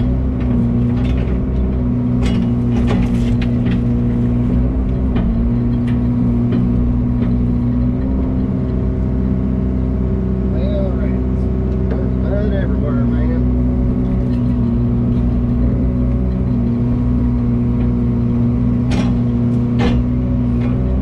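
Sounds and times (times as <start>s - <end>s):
diesel engine running: 0.0s - 21.0s
short knocks and clatters: 0.3s - 9.3s, 13.9s - 21.0s.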